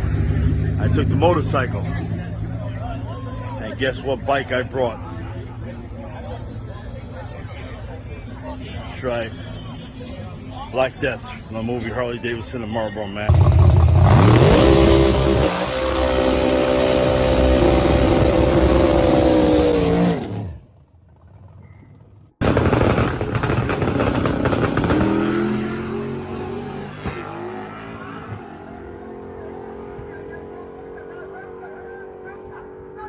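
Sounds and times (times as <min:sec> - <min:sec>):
loud vehicle engine running: 0:00.0 - 0:07.3, 0:09.4 - 0:30.2
engine revving: 0:13.3 - 0:20.7, 0:23.4 - 0:30.6.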